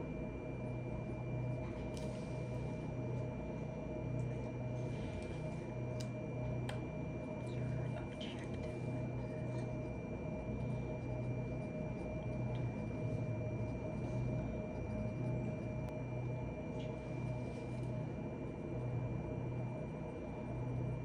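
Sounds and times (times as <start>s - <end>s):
appliance humming: 0.0s - 21.0s
faint high whine: 0.0s - 21.0s.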